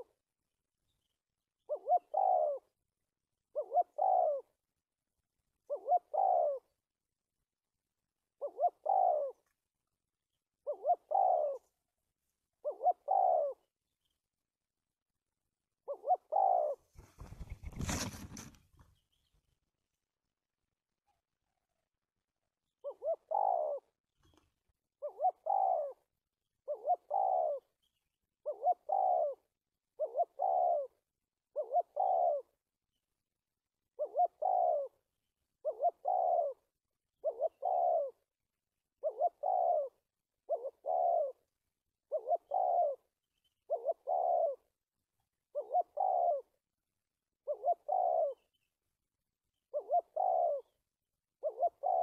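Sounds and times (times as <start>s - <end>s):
dove cooing: 1.6s - 2.8s, 3.5s - 4.6s, 5.6s - 6.8s, 8.4s - 9.5s, 10.6s - 11.8s, 12.6s - 13.7s, 15.8s - 18.4s, 22.8s - 24.0s, 25.0s - 27.7s, 28.4s - 32.6s, 33.9s - 38.3s, 39.0s - 44.8s, 45.5s - 46.6s, 47.4s - 48.6s, 49.6s - 50.8s, 51.4s - 52.0s.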